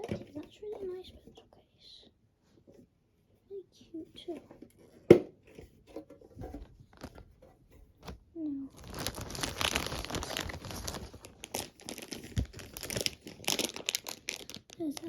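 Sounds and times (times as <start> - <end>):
packaging crinkling: 6.6 - 7.4, 8.7 - 15.0.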